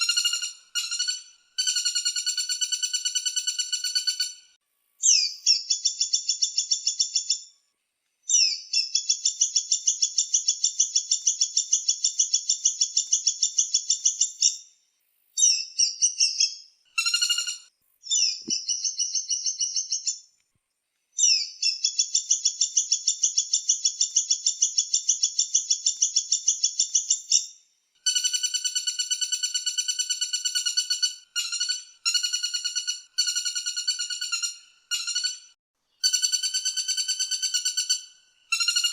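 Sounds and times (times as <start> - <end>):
recorded bird calls: 0.0 - 20.4, 21.1 - 38.9.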